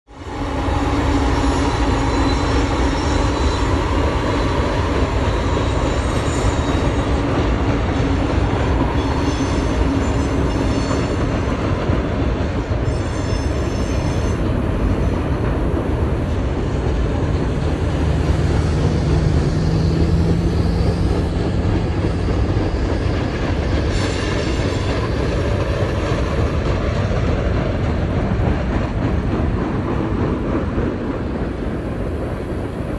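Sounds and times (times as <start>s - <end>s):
train rumbling across bridge: 0.1s - 32.9s
high-pitched wheel squeals: 0.6s - 4.4s, 12.8s - 14.4s.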